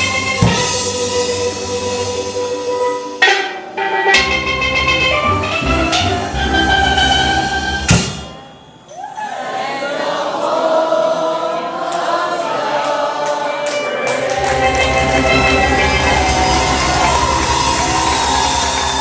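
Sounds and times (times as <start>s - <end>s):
bass and drums: 0.0s - 2.3s, 14.4s - 19.0s
steel drum band playing: 0.0s - 8.5s, 13.5s - 19.0s
loud accented hit: 3.2s - 7.2s, 14.1s - 19.0s
voices singing: 9.0s - 19.0s.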